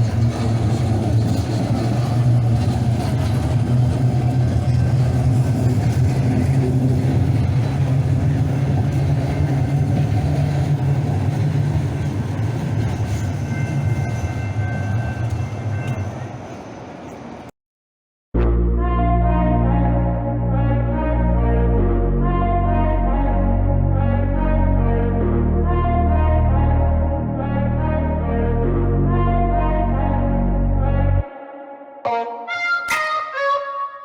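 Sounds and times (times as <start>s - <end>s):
train rumbling: 0.0s - 17.5s.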